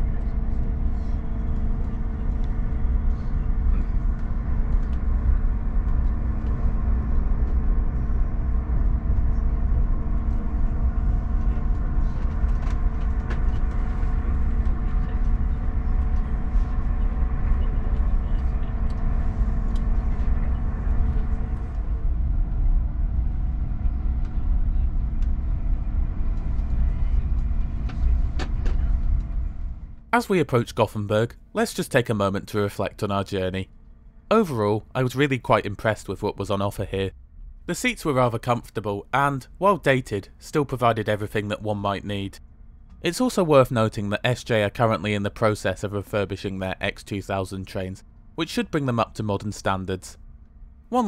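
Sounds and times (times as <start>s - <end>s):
train rumble on track: 0.0s - 30.1s.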